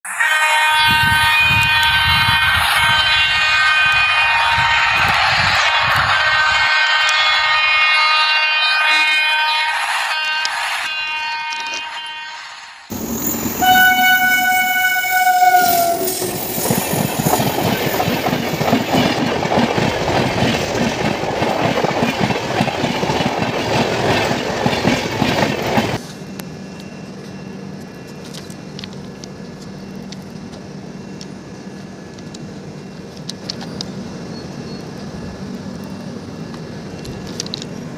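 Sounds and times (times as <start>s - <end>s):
train coaches running on rails: 0.0s - 37.9s
train horn: 0.1s - 12.7s, 13.6s - 16.2s.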